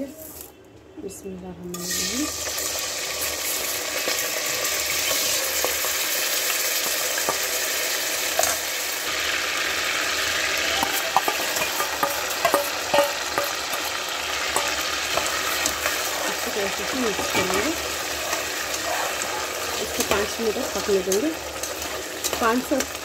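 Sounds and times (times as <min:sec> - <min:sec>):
oil sizzling: 0:01.7 - 0:23.0
metal spoon clinking on pan: 0:10.8 - 0:18.8, 0:19.8 - 0:23.0.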